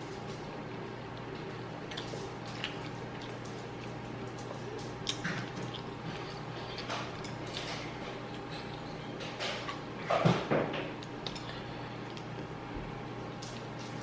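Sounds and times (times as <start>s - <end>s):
steady low hum: 0.0s - 14.0s
wet chewing: 0.4s - 9.0s.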